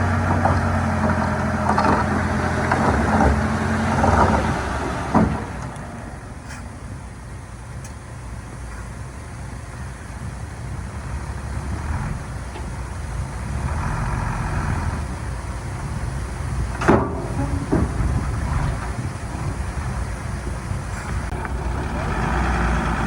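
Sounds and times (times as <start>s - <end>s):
heavy diesel machinery running: 0.0s - 23.0s.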